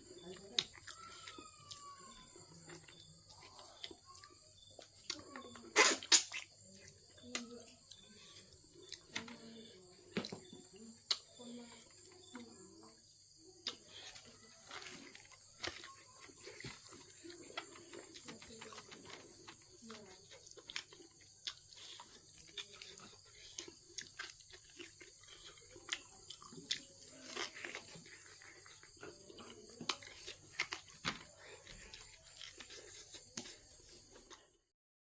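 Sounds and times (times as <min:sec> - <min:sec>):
person chewing: 0:00.0 - 0:09.2, 0:13.6 - 0:34.7
wet lip smacks: 0:05.8 - 0:06.5.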